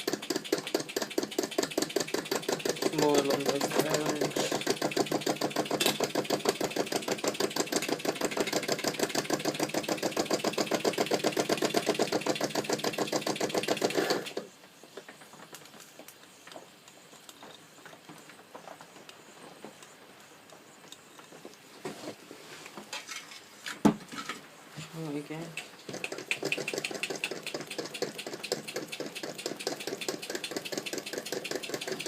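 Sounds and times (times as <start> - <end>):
toy steam engine chuffing: 0.0 - 14.5, 25.5 - 32.0.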